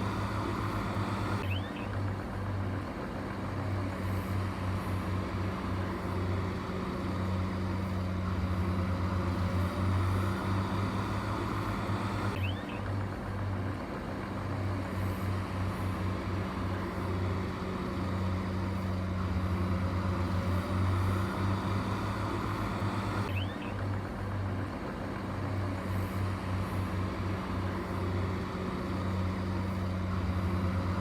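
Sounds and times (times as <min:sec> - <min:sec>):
diesel machine engine humming: 0:00.0 - 0:31.0.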